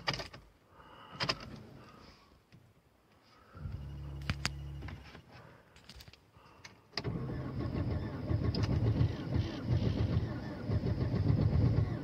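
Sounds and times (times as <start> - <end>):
low hum: 3.4 - 5.1
car engine running rough: 7.0 - 12.0.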